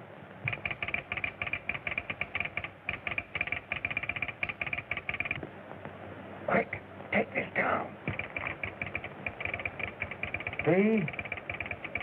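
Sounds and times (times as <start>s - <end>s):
rapid clicks through telephone: 0.4s - 5.4s, 8.1s - 12.0s.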